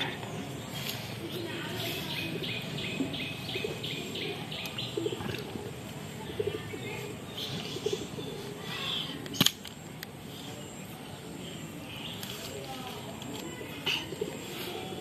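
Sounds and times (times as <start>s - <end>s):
birds cooing: 0.0s - 9.2s, 13.4s - 15.0s
birds chirping: 0.0s - 15.0s.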